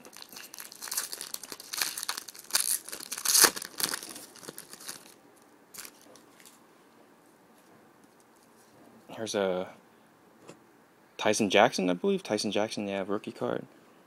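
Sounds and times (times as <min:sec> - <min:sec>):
wrapper tearing and crinkling: 0:00.0 - 0:06.6.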